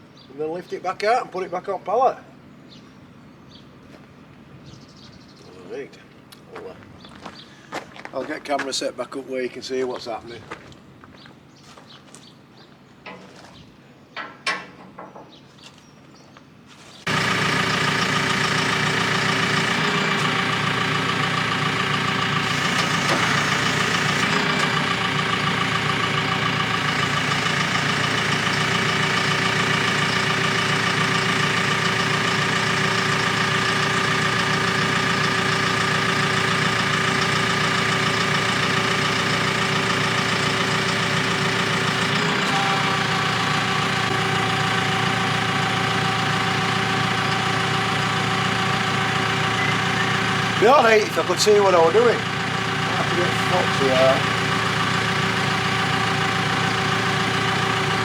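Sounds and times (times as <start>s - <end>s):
diesel engine idling: 17.0s - 58.0s.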